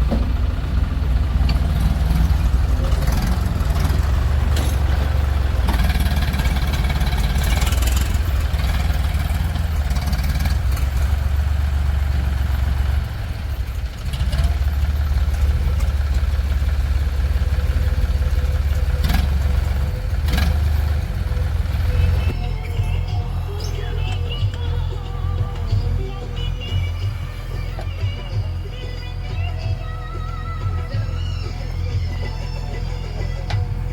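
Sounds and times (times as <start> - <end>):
heavy diesel engine running: 0.0 - 33.9.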